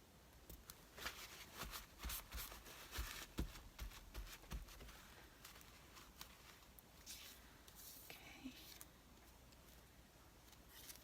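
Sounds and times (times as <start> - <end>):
paper rustling and crinkling: 0.9 - 8.9, 10.6 - 11.0.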